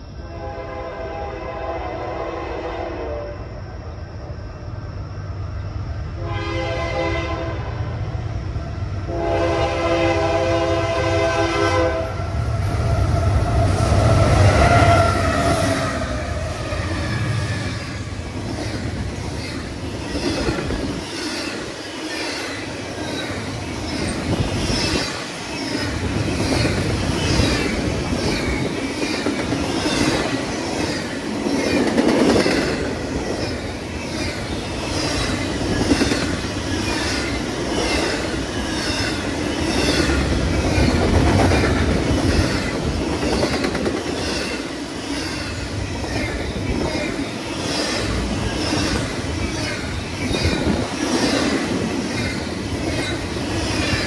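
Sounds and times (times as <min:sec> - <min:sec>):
train horn blasts: 0:00.2 - 0:03.5, 0:06.2 - 0:07.9, 0:09.1 - 0:16.3.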